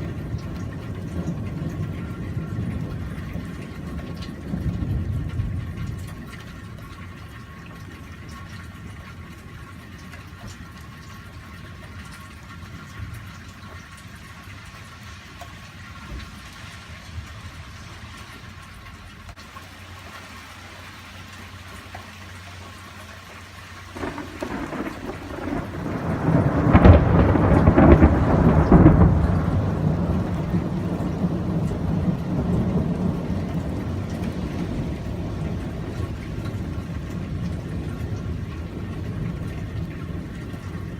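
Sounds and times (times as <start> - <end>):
rolling thunder: 0.0 - 9.3, 24.0 - 40.9
steady rain falling: 0.0 - 40.9.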